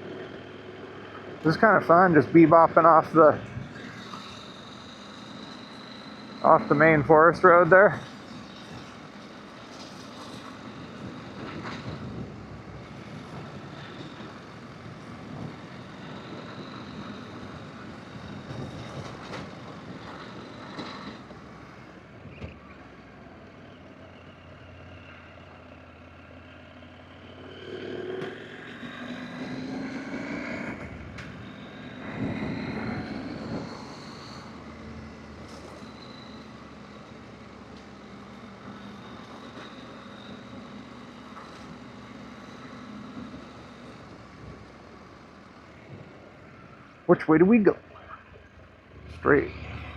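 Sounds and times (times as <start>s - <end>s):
tyres on dirt road: 0.0s - 49.9s
motorcycle engine: 27.1s - 44.8s, 47.9s - 49.9s.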